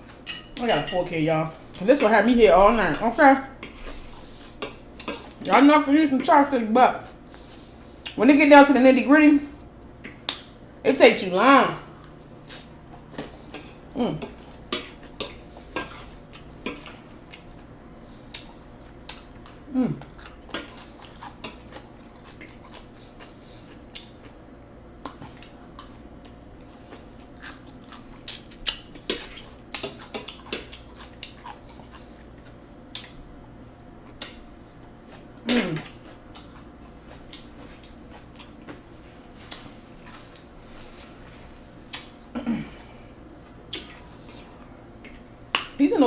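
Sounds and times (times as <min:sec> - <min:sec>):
chewing noodles: 0:12.5 - 0:24.4, 0:25.0 - 0:33.2, 0:34.0 - 0:42.2
person humming: 0:19.7 - 0:20.1.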